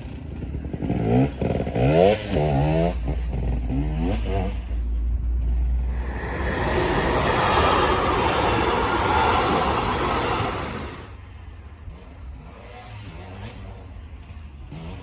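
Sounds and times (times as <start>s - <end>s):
steady rushing noise: 5.8s - 11.2s.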